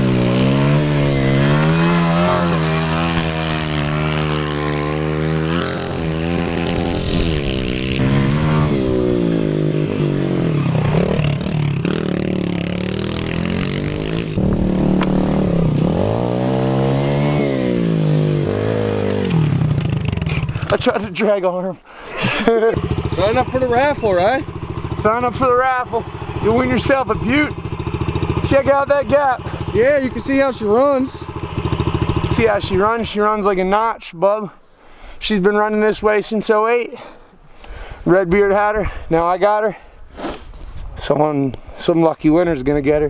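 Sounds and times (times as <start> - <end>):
motorbike engine revving: 0.0 - 21.0, 22.2 - 33.8.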